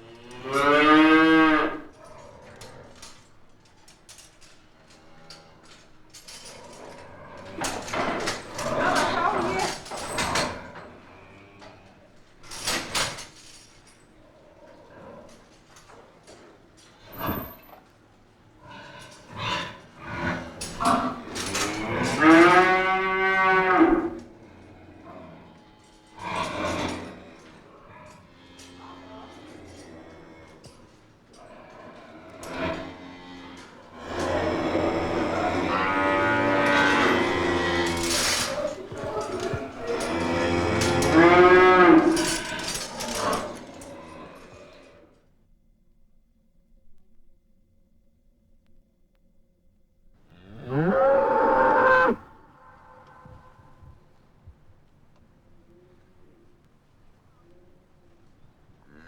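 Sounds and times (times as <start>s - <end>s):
cow mooing: 0.0s - 3.1s, 6.5s - 10.4s, 20.3s - 24.3s, 31.9s - 44.5s, 50.3s - 53.9s
metallic clinks of tether chains: 2.7s - 10.4s, 36.7s - 43.6s.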